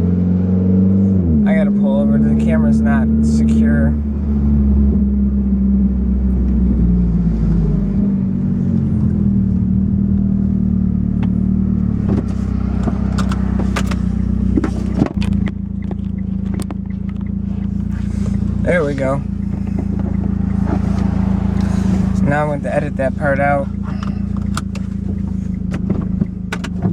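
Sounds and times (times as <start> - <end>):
car engine and exhaust running: 0.0 - 26.9
dashboard camera clicks and knocks: 12.0 - 17.7, 24.0 - 26.9.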